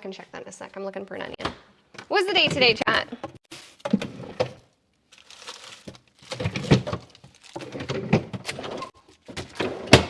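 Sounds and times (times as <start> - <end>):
kitchen items knocking and clattering: 1.4 - 4.7, 5.7 - 10.0.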